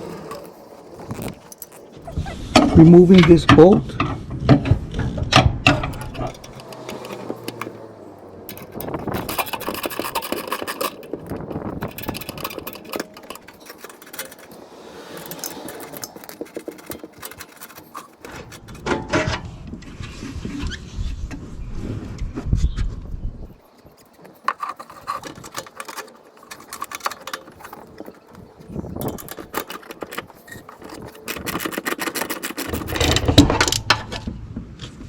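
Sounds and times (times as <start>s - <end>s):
metal and plastic scraping: 0.0s - 35.0s
ratchet clicking: 8.5s - 18.8s.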